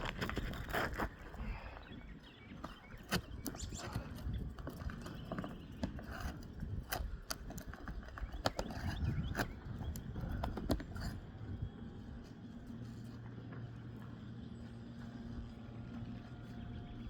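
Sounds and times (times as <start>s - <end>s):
hand tools scraping roof shingles: 2.6s - 11.2s.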